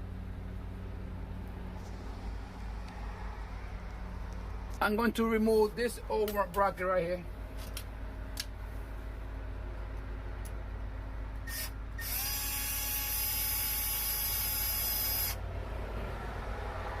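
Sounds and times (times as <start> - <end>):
cordless drill running: 11.5 - 15.4.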